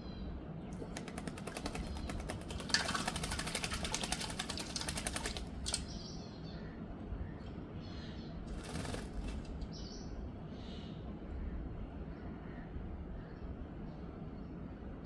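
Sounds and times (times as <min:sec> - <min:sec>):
bird splashing in water: 0:00.8 - 0:06.0, 0:08.5 - 0:09.6.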